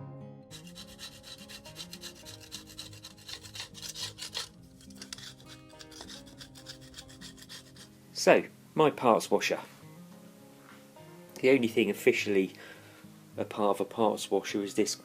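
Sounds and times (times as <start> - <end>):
quiet background music: 0.0 - 15.0
stiff brush scrubbing: 0.5 - 7.9.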